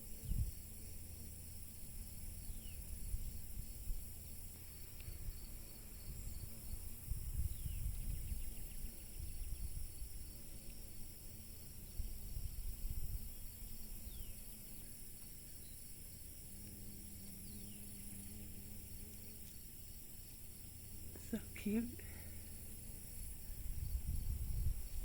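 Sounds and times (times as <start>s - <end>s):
wind rumble on microphone: 0.0s - 0.9s, 2.4s - 10.6s, 11.8s - 14.4s, 23.2s - 25.0s
high-pitched insect chorus: 0.0s - 25.0s.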